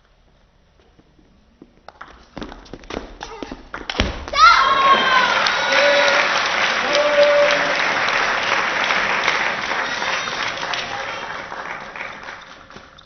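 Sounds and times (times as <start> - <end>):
spectators applauding: 3.8 - 13.0.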